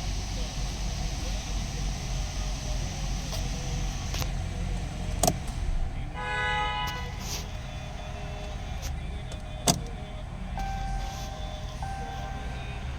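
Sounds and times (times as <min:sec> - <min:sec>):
engine idling: 0:00.0 - 0:12.9
short electronic chime: 0:10.6 - 0:12.9.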